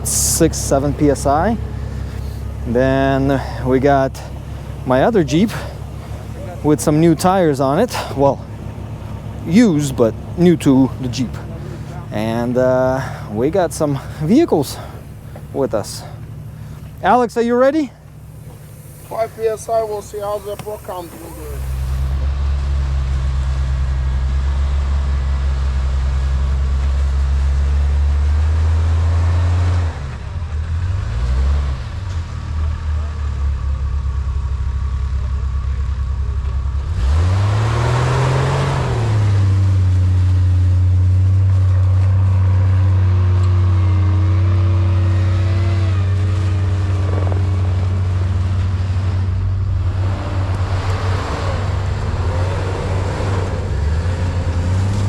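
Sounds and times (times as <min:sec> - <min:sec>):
engine revving under load: 0:00.0 - 0:34.0, 0:36.4 - 0:55.0.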